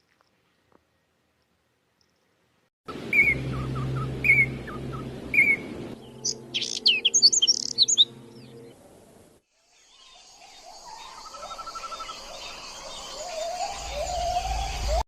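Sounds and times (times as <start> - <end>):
high bird chirps: 3.1 - 8.8.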